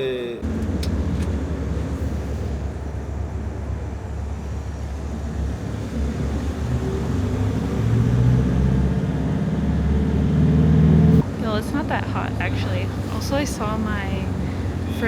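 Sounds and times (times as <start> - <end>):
vehicle engine rumble: 0.1 - 15.0.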